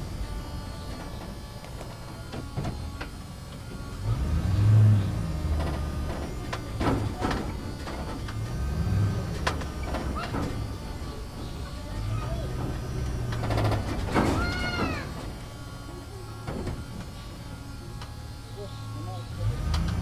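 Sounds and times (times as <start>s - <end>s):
low engine running: 0.0s - 20.0s
sharp clanks and rattles: 4.6s - 18.7s.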